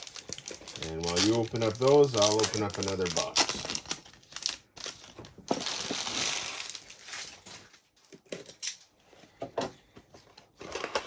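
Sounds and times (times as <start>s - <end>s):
plastic wrapping tearing and crinkling: 0.0s - 7.8s.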